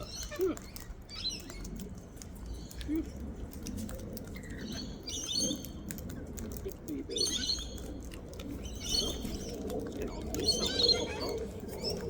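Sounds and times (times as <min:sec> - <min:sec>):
clicks and rustles: 0:00.0 - 0:12.0.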